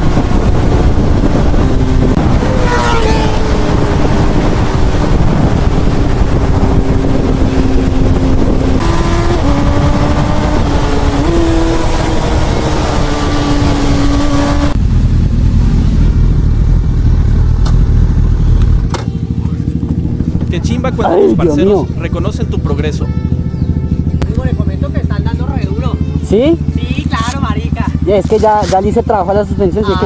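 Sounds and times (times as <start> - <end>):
wind rush on microphone: 0.0 - 17.5
motorcycle engine running: 0.0 - 30.0.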